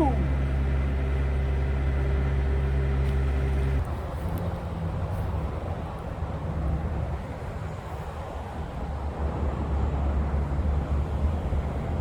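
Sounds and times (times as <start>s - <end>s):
engine drone: 0.0s - 3.8s.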